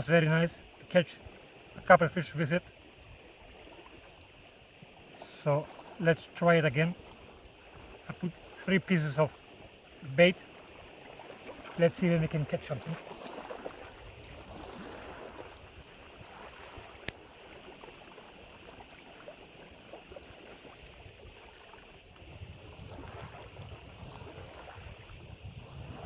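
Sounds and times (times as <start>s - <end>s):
lapping lake water: 0.0s - 26.0s
wind buffeting microphone: 6.8s - 18.6s, 19.8s - 26.0s.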